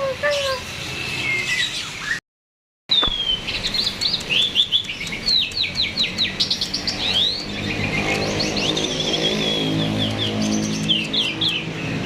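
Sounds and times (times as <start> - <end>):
starling singing: 2.9 - 12.0.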